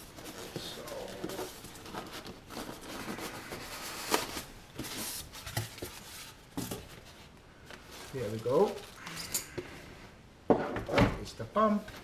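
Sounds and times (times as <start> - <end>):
cardboard packaging rustling: 0.0 - 9.0.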